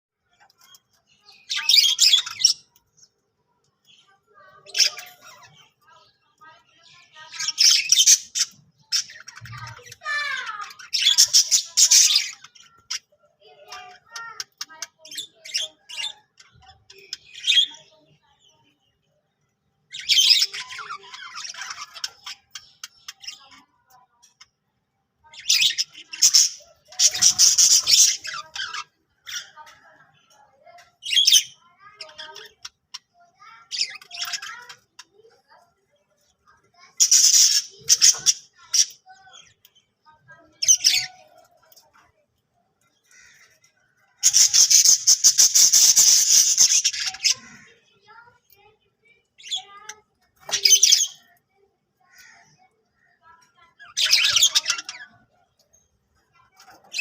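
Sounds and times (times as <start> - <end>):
budgerigars chirping and chattering: 0.2 - 24.6, 25.2 - 42.2, 42.8 - 51.4, 52.0 - 57.0.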